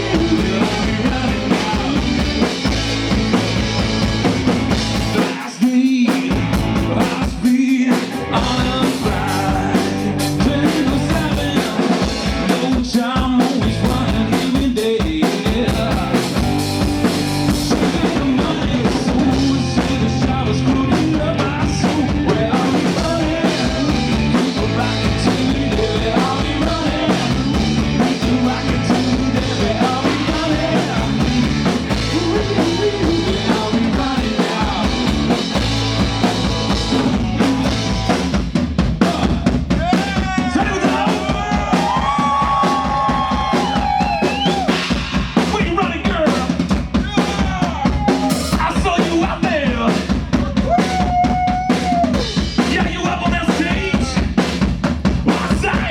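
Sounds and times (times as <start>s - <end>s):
live rock band playing: 0.0s - 55.9s.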